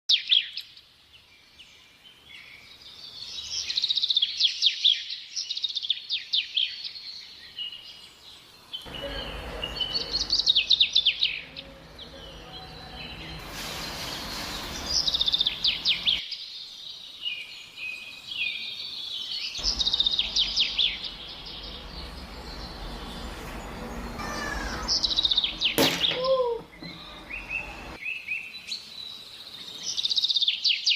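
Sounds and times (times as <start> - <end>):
birds chirping and trilling: 0.1 - 30.9
bright hiss: 13.4 - 15.9.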